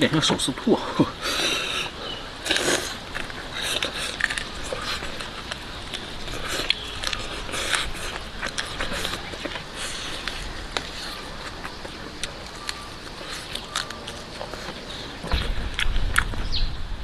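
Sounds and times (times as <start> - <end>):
chewing crispy fried chicken: 1.2 - 16.4.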